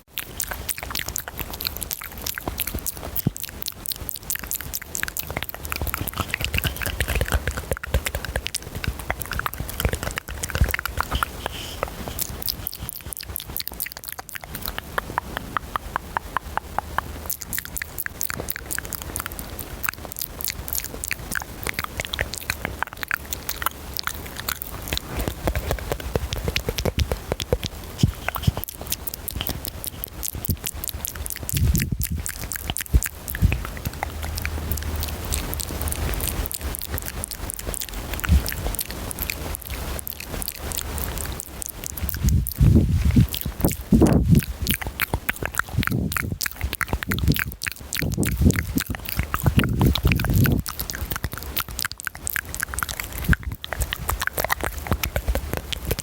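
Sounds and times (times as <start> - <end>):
wet mouth clicks and smacks: 0.0 - 56.0
breathing: 11.1 - 12.2.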